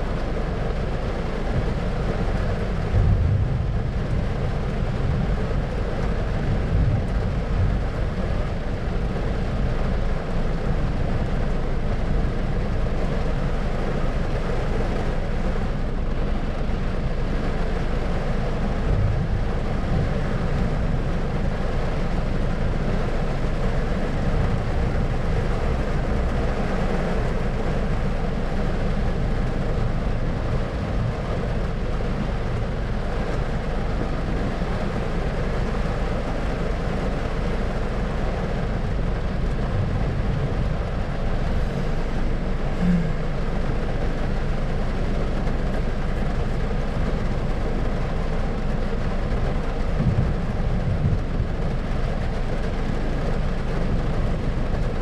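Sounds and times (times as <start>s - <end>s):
low rumble: 0.0s - 55.0s.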